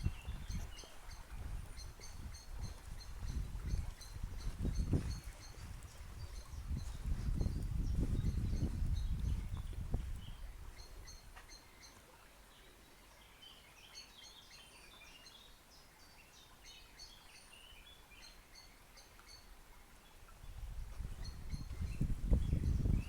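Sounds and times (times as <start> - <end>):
songbirds chirping and singing: 0.0 - 12.0.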